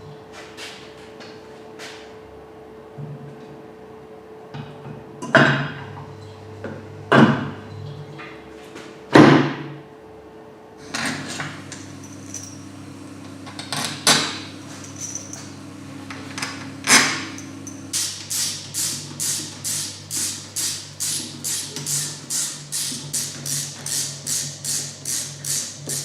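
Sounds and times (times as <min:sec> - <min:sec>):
steady low hum: 0:10.8 - 0:22.6.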